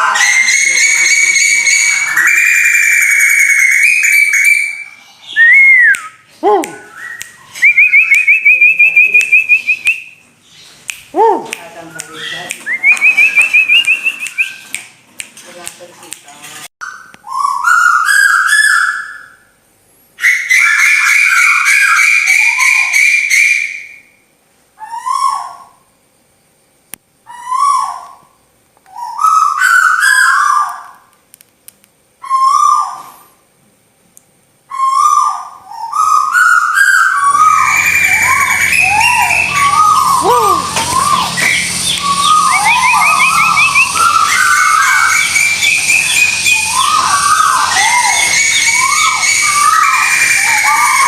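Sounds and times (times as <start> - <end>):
whistled bird calls: 0.0 - 10.8, 11.8 - 14.8, 16.8 - 19.6, 20.2 - 24.2, 32.2 - 33.4, 34.7 - 51.0.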